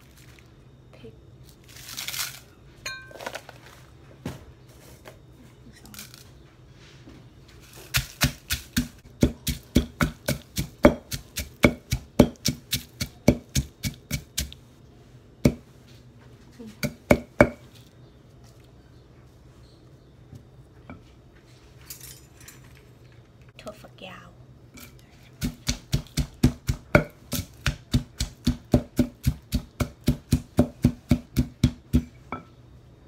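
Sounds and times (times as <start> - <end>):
pestle pounding in mortar: 7.8 - 14.6, 15.4 - 15.7, 16.8 - 17.6, 25.4 - 32.2.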